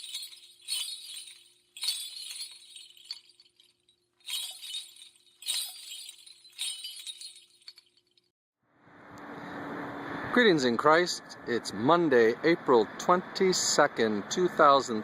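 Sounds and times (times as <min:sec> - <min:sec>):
glassy crashes with ringing tails: 0:00.0 - 0:03.7, 0:04.3 - 0:07.9.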